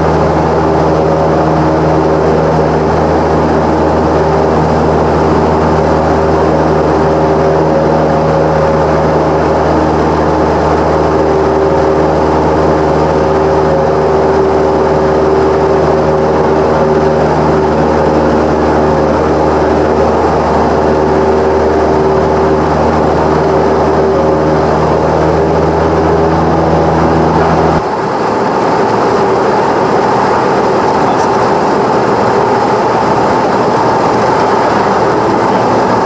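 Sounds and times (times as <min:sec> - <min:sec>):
deep low hum: 0:00.0 - 0:27.8
propeller plane engine drone: 0:00.0 - 0:36.0.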